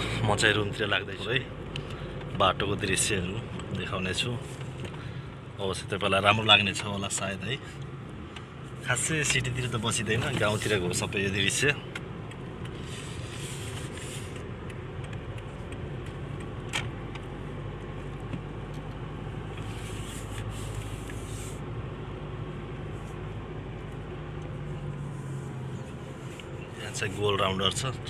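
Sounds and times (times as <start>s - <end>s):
vehicle engine hum: 0.0s - 28.0s
tyre noise on road: 7.1s - 28.0s.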